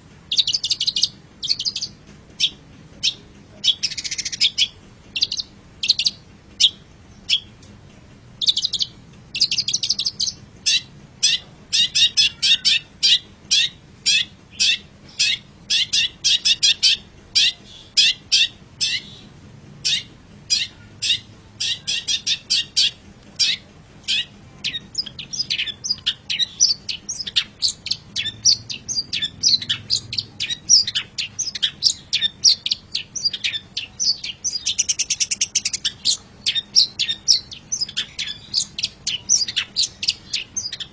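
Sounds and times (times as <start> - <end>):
bird chirping: 0.3 - 7.6, 8.4 - 40.9.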